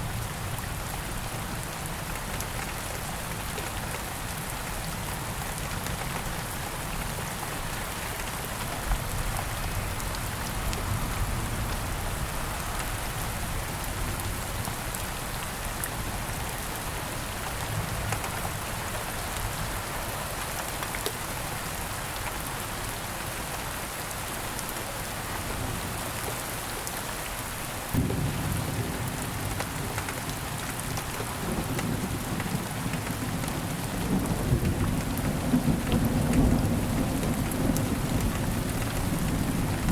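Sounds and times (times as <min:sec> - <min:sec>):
rain falling in woods: 0:00.0 - 0:39.9
thunder rumble: 0:28.0 - 0:39.9.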